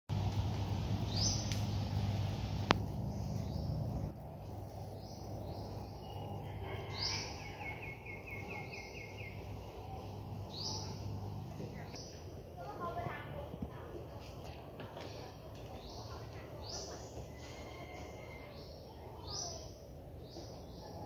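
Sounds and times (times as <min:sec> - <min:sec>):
low hum: 0:00.1 - 0:15.6
bird chirping: 0:01.0 - 0:02.0, 0:02.7 - 0:12.2.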